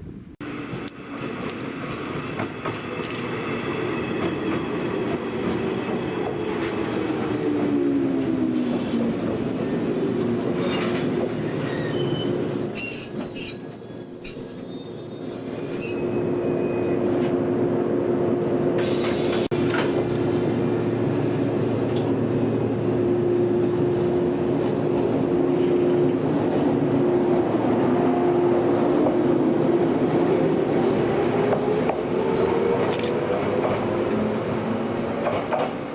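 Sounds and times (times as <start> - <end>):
electric train humming on rails: 0.0 - 35.9
high-pitched wheel squeal: 10.6 - 17.0.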